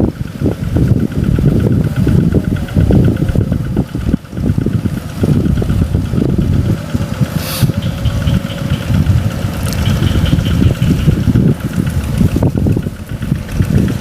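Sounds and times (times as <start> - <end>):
tractor engine running: 0.0 - 14.0
short hiss: 7.3 - 7.9.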